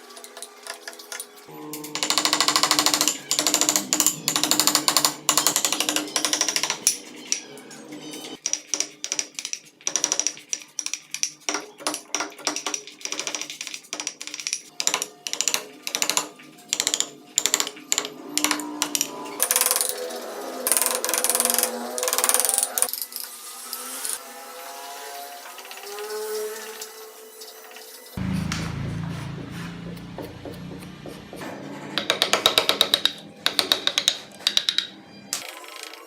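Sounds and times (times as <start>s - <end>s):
background music: 0.0s - 9.7s, 28.2s - 36.0s
carving tools cutting wood: 1.9s - 7.0s, 8.4s - 34.9s.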